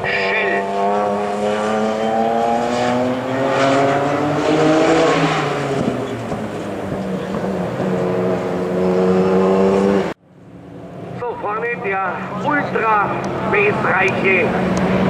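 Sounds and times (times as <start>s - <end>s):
racing car engines: 0.0s - 15.0s.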